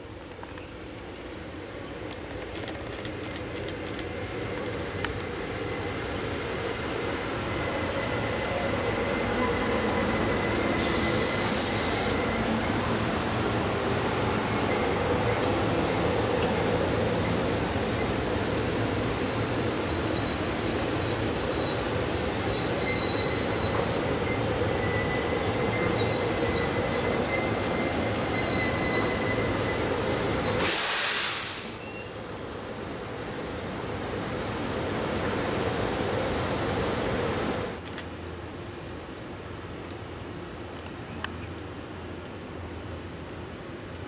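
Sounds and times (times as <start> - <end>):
train rumble: 0.0 - 44.0
train wheels squealing: 3.7 - 32.6.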